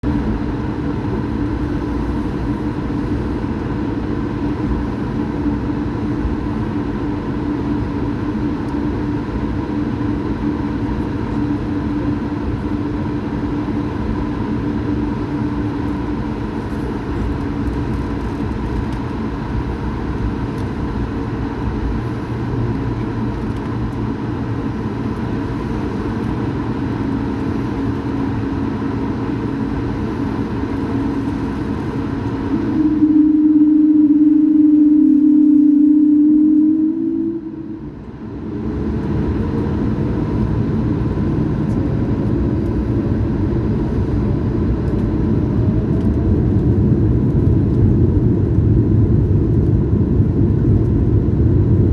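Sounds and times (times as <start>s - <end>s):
aircraft engine rumble: 0.0s - 51.9s.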